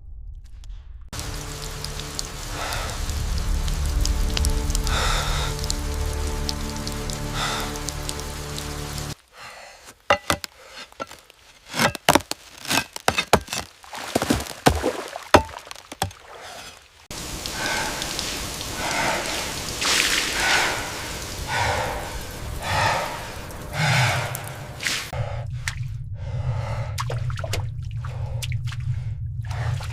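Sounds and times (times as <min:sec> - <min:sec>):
sharp drips and knocks: 0:01.2 - 0:09.2, 0:10.1 - 0:25.0
steady rain: 0:01.2 - 0:09.8, 0:10.6 - 0:25.1
person breathing: 0:02.4 - 0:03.3, 0:04.8 - 0:05.7, 0:07.3 - 0:07.9, 0:09.2 - 0:11.9, 0:16.3 - 0:27.3, 0:27.9 - 0:29.9.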